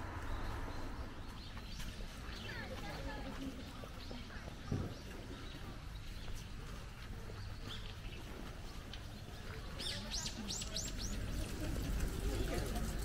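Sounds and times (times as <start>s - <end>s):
low outdoor rumble: 0.0s - 2.5s.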